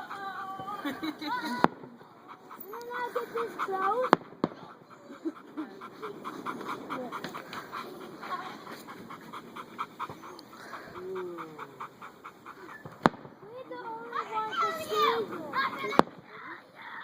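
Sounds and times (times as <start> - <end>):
dog panting quickly: 0.0 - 16.4
dog whining softly: 10.0 - 13.1.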